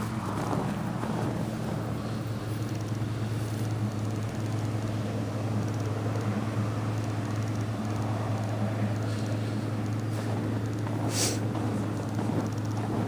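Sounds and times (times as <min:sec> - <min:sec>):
constant noisy rush: 0:00.0 - 0:13.0
low mechanical hum: 0:00.0 - 0:13.0.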